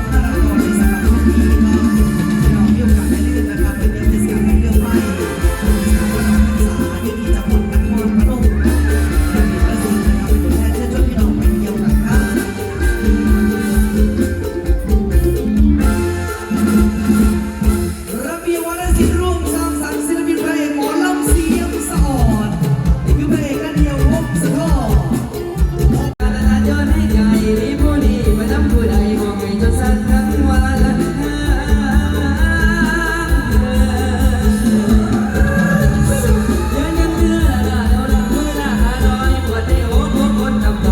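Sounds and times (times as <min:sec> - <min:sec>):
heavy bass beat: 0:00.0 - 0:17.9
heavy bass and drum beat: 0:00.0 - 0:20.5, 0:21.2 - 0:40.9
live band music: 0:00.0 - 0:40.9
person singing: 0:00.0 - 0:40.9.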